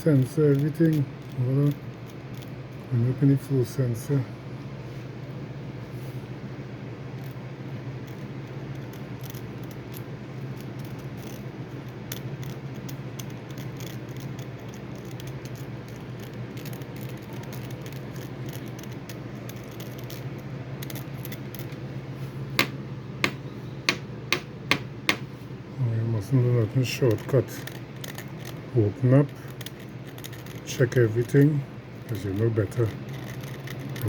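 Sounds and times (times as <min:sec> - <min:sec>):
small metal parts clicking and rattling: 0:00.0 - 0:03.1, 0:07.2 - 0:07.4, 0:08.0 - 0:21.8, 0:26.2 - 0:34.0
steady low hum: 0:00.0 - 0:34.0.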